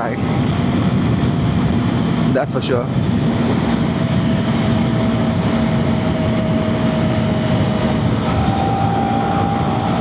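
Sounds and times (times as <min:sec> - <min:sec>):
wind rushing over microphone: 0:00.0 - 0:10.0
motorcycle engine cruising: 0:03.1 - 0:10.0.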